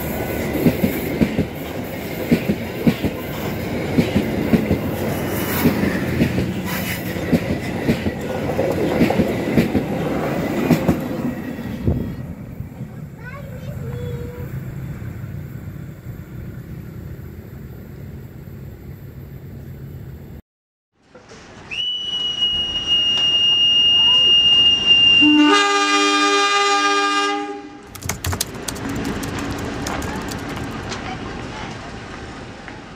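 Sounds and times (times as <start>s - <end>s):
train rumbling along track: 0.0s - 20.4s, 27.9s - 32.9s
long whistle blast: 21.6s - 27.8s
locomotive horn: 24.1s - 27.9s.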